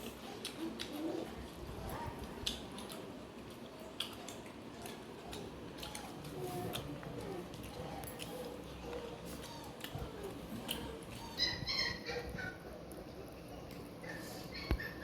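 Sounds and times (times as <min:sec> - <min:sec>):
eating clicks and smacks: 0:00.0 - 0:01.6, 0:02.2 - 0:11.3
faint background murmur: 0:00.0 - 0:15.0.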